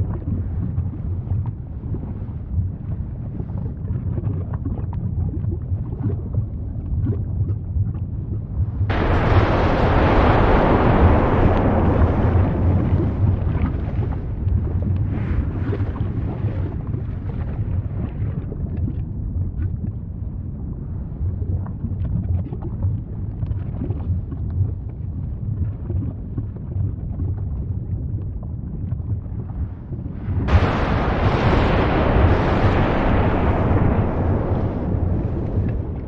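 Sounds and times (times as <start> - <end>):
crackles: 0.0 - 20.0, 21.2 - 36.0
volcano rumbling: 6.2 - 19.5, 28.7 - 36.0.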